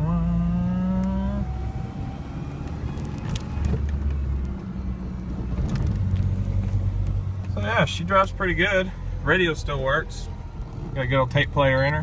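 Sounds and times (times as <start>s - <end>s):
pickup engine from inside cab: 0.0s - 12.0s.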